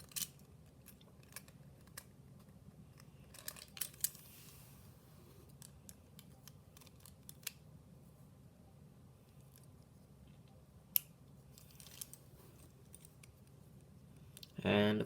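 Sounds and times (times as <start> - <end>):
small plastic parts clicking: 0.0 - 4.2, 5.5 - 7.6, 10.9 - 12.2.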